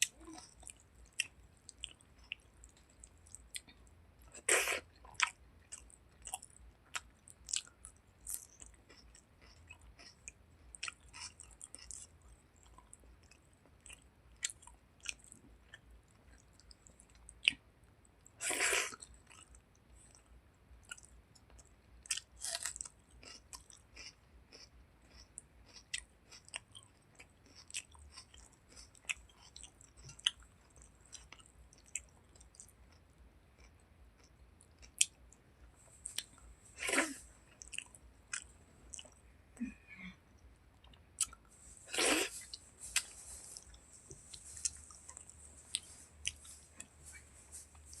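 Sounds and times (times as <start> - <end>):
person chewing with wet mouth sounds: 0.0 - 48.0.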